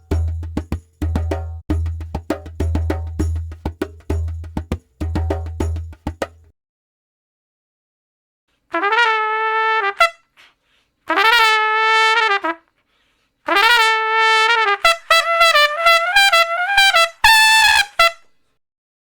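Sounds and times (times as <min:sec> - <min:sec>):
brass instrument playing notes: 0:08.8 - 0:10.2.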